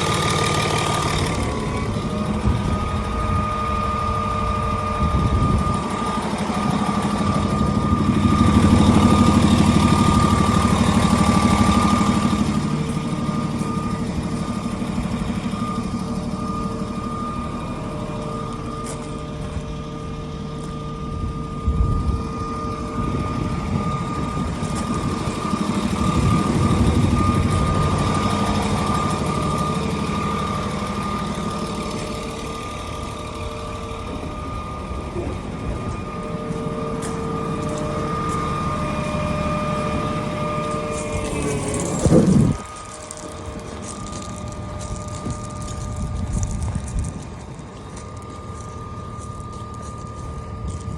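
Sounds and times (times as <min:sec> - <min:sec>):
diesel engine running: 0:00.0 - 0:50.9
high-pitched whine: 0:00.0 - 0:50.9.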